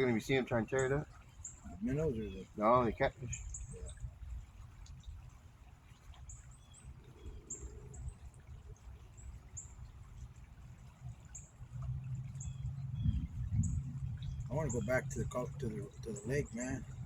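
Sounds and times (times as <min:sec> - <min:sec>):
small birds chirping: 0:00.0 - 0:17.0
low rumble: 0:11.7 - 0:17.0.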